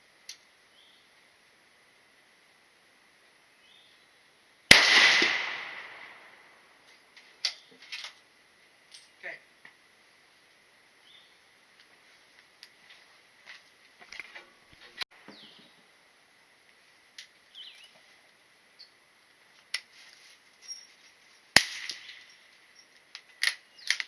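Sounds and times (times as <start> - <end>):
loud gunshot: 4.7 - 6.5, 21.6 - 22.1
faint sharp cracks and clicks: 21.5 - 22.2, 23.0 - 24.0.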